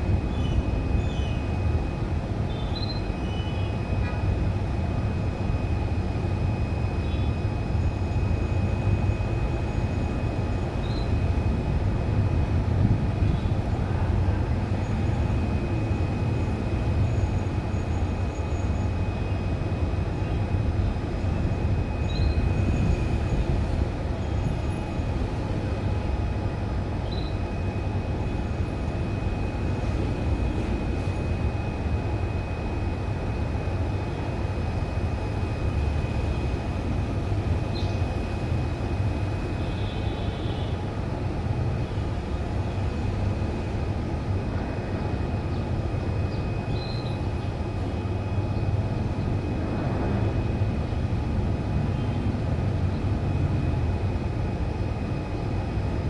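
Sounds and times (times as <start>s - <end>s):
faint high whine: 0.0s - 56.0s
faint bird chirps: 2.4s - 3.7s, 10.8s - 11.2s, 22.0s - 23.0s, 27.0s - 27.4s, 46.3s - 47.5s.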